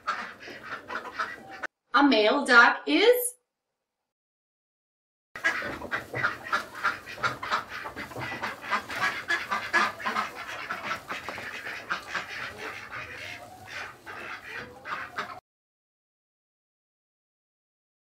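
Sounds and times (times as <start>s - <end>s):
ducks quacking: 0.0s - 1.7s, 5.4s - 15.4s.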